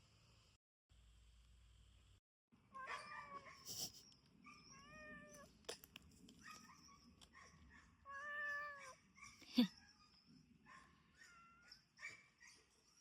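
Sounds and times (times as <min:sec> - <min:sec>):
cat meowing softly: 0:04.7 - 0:05.6, 0:08.1 - 0:09.0.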